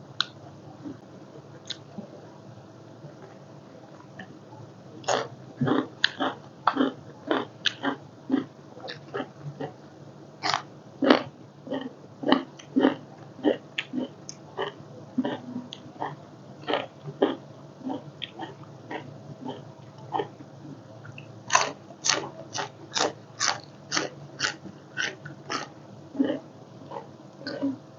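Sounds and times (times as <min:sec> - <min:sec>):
person chewing food: 0:01.6 - 0:02.0, 0:05.0 - 0:09.8, 0:10.4 - 0:20.4, 0:21.0 - 0:27.8.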